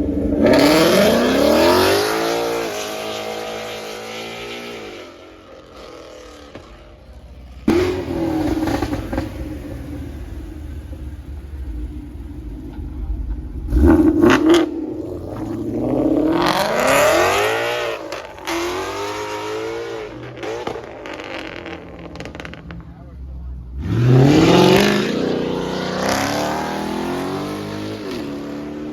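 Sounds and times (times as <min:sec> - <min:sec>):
car engine revving: 0:00.0 - 0:28.9
exhaust pops: 0:06.5 - 0:16.7, 0:20.2 - 0:23.5.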